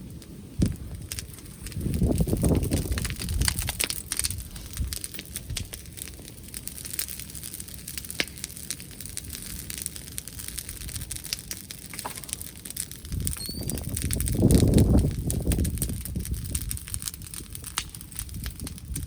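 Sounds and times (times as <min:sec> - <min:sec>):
bonfire crackling: 0:00.0 - 0:19.0
fire popping and snapping: 0:00.0 - 0:19.0
wind rumble on microphone: 0:00.4 - 0:06.0, 0:10.6 - 0:11.2, 0:12.9 - 0:19.0.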